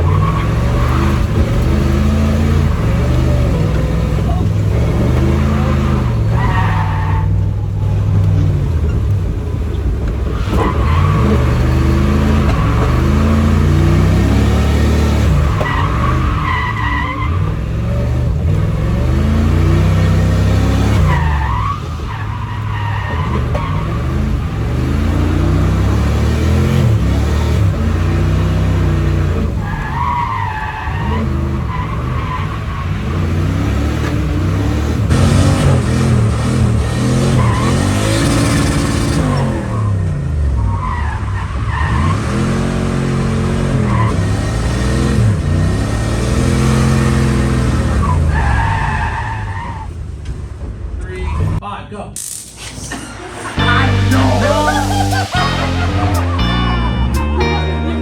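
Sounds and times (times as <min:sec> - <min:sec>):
car engine revving: 0:00.0 - 0:50.6, 0:53.1 - 0:58.0
tyres squealing: 0:19.2 - 0:27.2.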